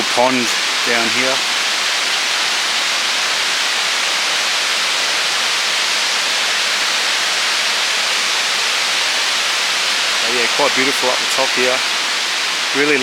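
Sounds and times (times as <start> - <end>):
waterfall rushing water: 0.0 - 13.0.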